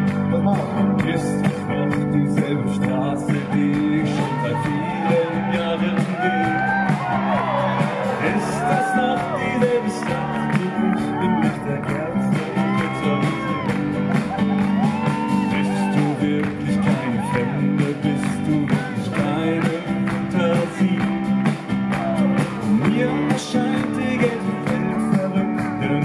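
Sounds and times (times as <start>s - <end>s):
live concert music with singing: 0.0s - 26.0s
crowd shouting: 3.5s - 17.6s.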